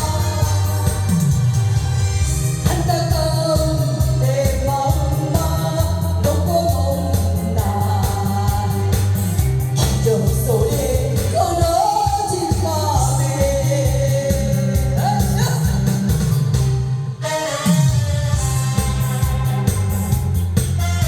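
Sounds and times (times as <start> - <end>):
person singing: 0.0 - 1.7, 2.4 - 16.4
band accompaniment with steady beat: 0.0 - 21.0.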